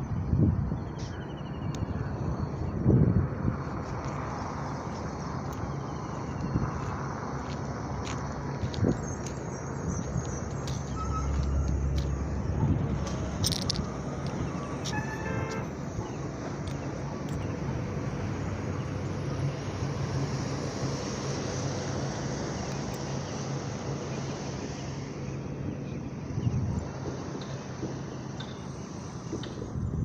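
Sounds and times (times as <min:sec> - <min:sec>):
road traffic noise: 0:00.0 - 0:30.0
vehicle engines running: 0:00.0 - 0:30.0
vehicle horn toot: 0:14.9 - 0:15.7.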